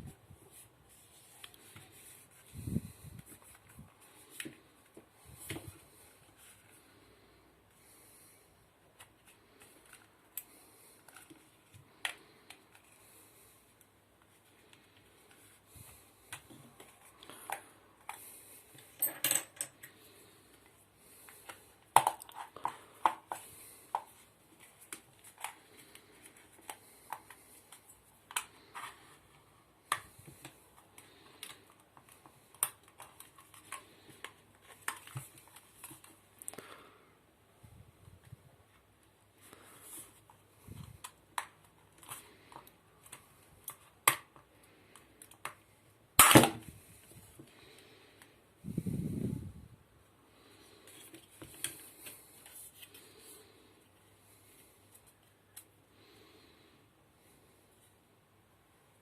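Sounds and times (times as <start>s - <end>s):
small parts and tools clattering: 18.8s - 19.9s.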